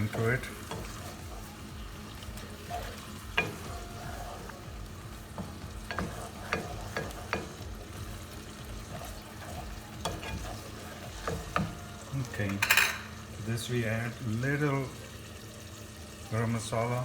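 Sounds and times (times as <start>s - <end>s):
sauce simmering and sizzling: 0.0s - 17.0s
utensil knocking against pan: 2.7s - 3.8s, 5.3s - 8.2s, 8.8s - 11.8s.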